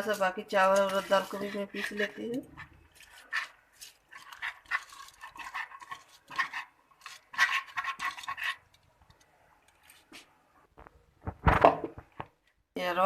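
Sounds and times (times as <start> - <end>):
spoon scraping steel vessels: 0.0 - 8.9.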